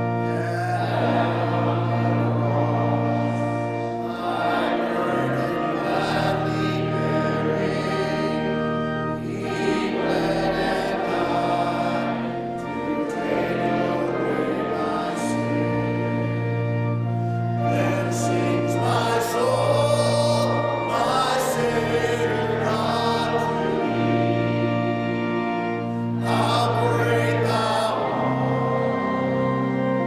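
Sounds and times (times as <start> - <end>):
group singing a hymn: 0.0 - 30.0
organ chords: 0.0 - 30.0.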